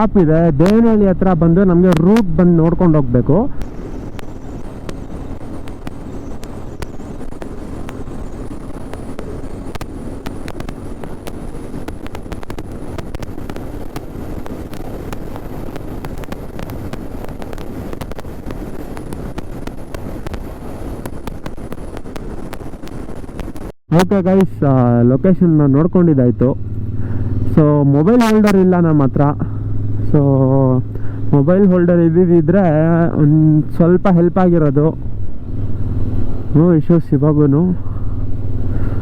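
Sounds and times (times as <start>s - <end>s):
motorcycle engine hum: 0.0s - 39.0s
rushing wind: 0.0s - 39.0s
crackles on microphone: 3.6s - 23.8s.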